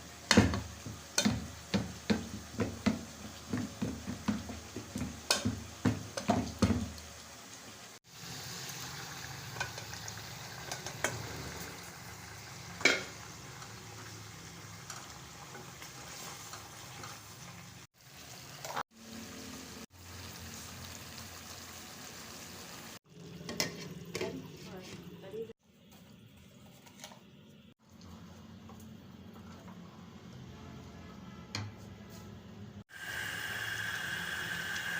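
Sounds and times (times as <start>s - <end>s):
chicken sizzling in a pan: 0.0s - 25.5s, 32.9s - 34.9s.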